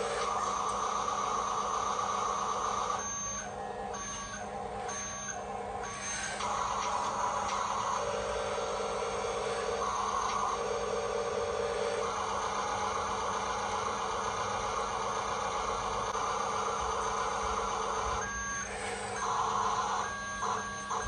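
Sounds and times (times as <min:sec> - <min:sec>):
toy electric motor whirring: 0:00.0 - 0:11.2
electronic reversing beeps: 0:00.3 - 0:11.2, 0:12.0 - 0:21.0.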